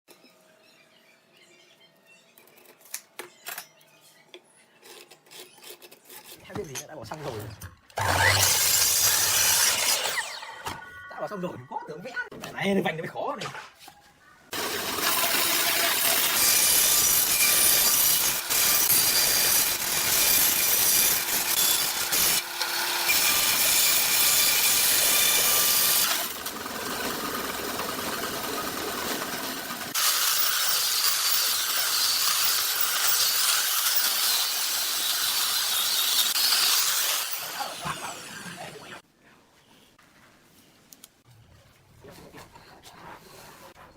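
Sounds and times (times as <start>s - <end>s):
power tools cutting wood: 7.9s - 10.8s, 14.5s - 39.0s.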